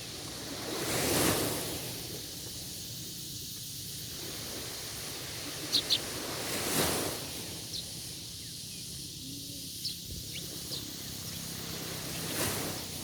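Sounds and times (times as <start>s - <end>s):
steady high hiss: 0.0s - 13.0s
bird chirps: 5.7s - 6.1s, 7.7s - 12.4s.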